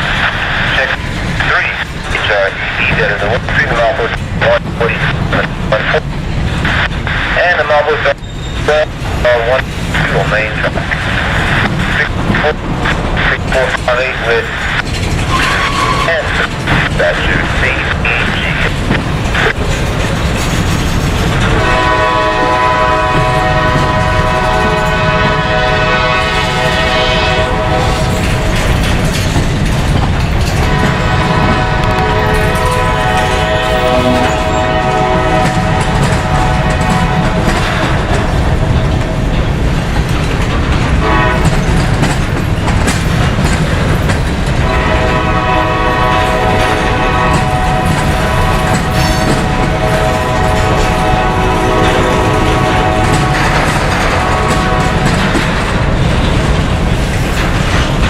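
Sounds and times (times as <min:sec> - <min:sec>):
passing train rumble: 0:00.0 - 0:58.0
locomotive air horn chord: 0:21.5 - 0:28.2, 0:30.6 - 0:37.5, 0:41.0 - 0:41.5, 0:44.6 - 0:55.2.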